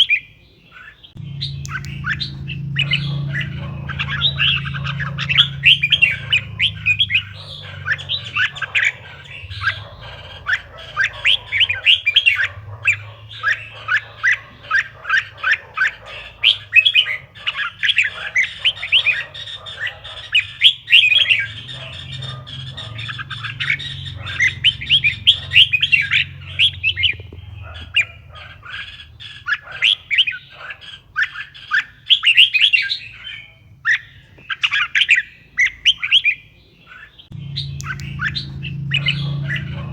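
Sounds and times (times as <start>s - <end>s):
bird singing chirpy phrases: 0.0s - 39.9s
low steady hum: 1.2s - 14.0s, 37.3s - 39.9s.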